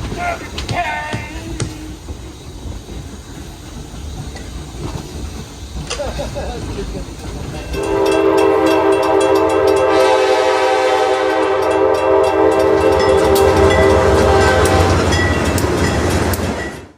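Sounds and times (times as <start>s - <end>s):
passing train rumble: 0.0s - 16.9s
train wheel clicks: 0.0s - 16.9s
locomotive horn chime: 7.7s - 16.1s.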